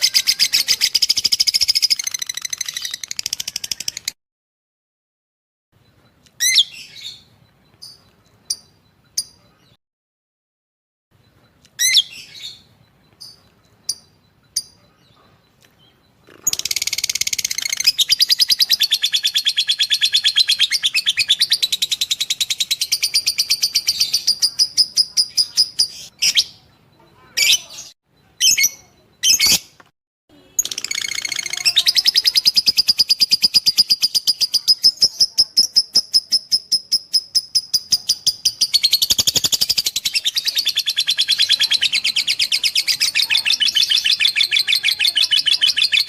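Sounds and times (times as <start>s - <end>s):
lovebird chattering trill: 0.0s - 4.2s, 16.0s - 29.7s, 30.6s - 46.0s
lovebird sharp chirps: 0.0s - 4.2s, 6.1s - 9.8s, 11.6s - 46.0s.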